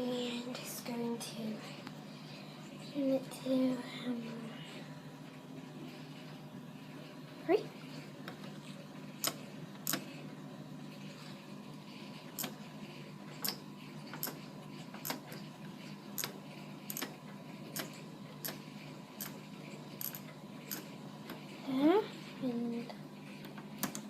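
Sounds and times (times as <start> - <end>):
steady low hum: 0.0 - 24.0
washing machine controls clicking: 9.2 - 10.1, 12.4 - 12.6, 13.4 - 14.4, 15.0 - 15.5, 16.2 - 19.4, 20.0 - 21.5, 23.4 - 24.0.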